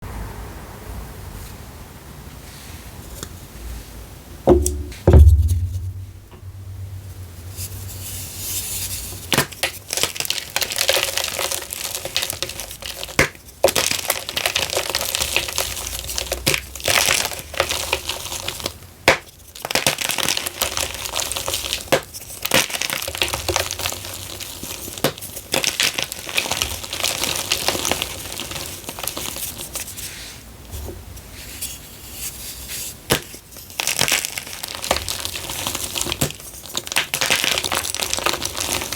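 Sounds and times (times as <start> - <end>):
loud thump: 4.5 - 7.0.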